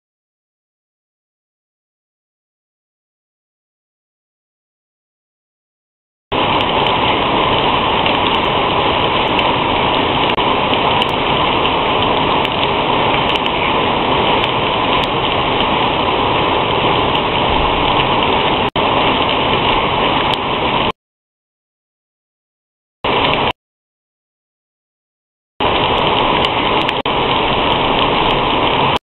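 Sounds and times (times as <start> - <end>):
steady rain: 6.3 - 21.0, 23.1 - 23.6, 25.6 - 29.0.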